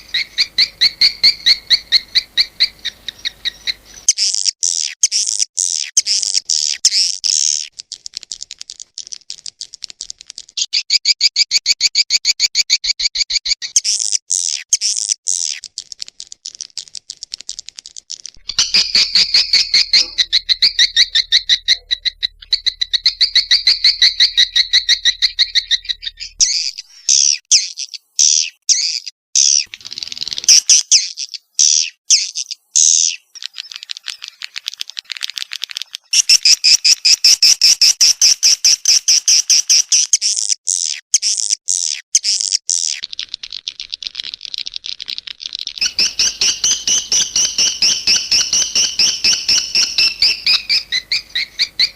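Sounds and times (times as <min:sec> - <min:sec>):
swiftlets chirping twitters: 0:00.0 - 0:08.4, 0:17.9 - 0:51.9
faint low hum: 0:18.4 - 0:26.4.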